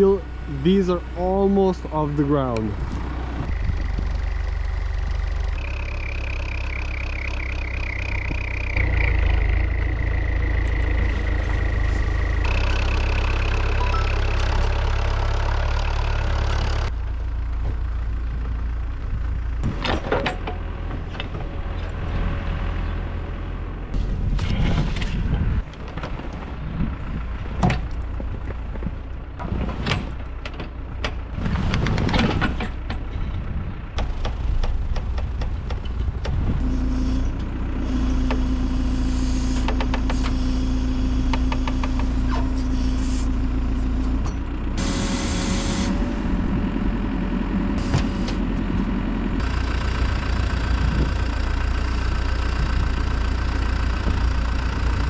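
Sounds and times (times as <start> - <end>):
diesel loader engine running: 0.0 - 55.0
metal clanks and knocks: 19.6 - 22.0
hydraulic whine: 36.3 - 46.9, 47.8 - 53.0.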